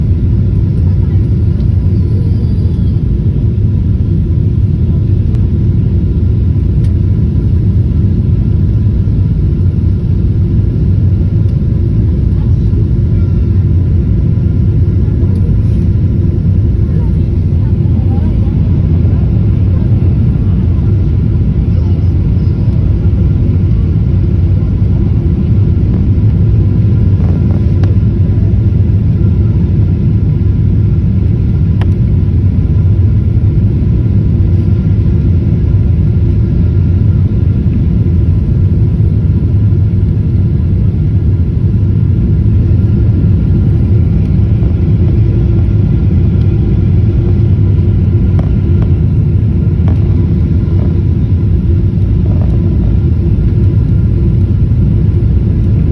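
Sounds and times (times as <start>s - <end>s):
jet engines and rushing airflow: 0.0s - 55.9s
faint whining tones: 1.0s - 4.1s, 11.4s - 28.0s.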